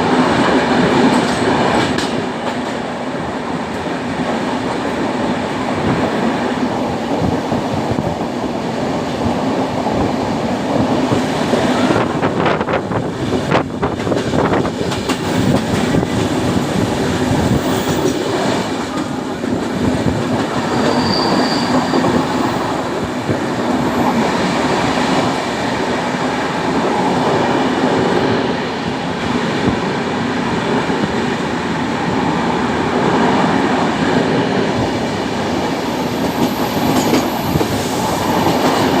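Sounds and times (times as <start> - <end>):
train wheels rumbling on rails: 0.0 - 39.0
high squeal: 20.6 - 22.6.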